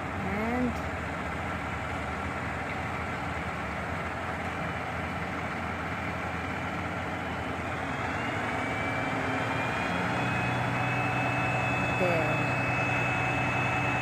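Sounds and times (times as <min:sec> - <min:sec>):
truck engine running: 0:00.0 - 0:14.0
faint rising whine: 0:06.3 - 0:14.0.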